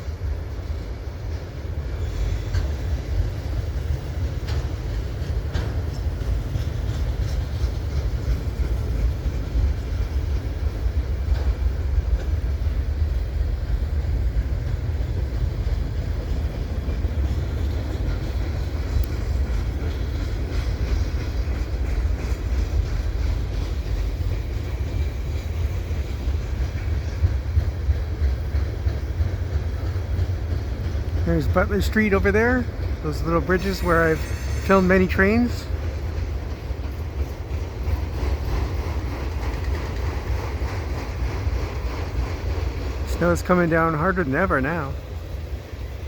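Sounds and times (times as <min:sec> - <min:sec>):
freight train wheels rumbling: 0:00.0 - 0:46.0.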